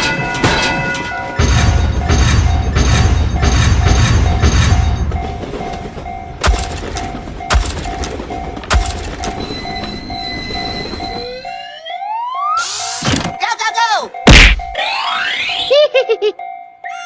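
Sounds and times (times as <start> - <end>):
passing train rumble: 0.0 - 11.5
railroad crossing bell ringing: 0.0 - 12.0, 12.6 - 17.0.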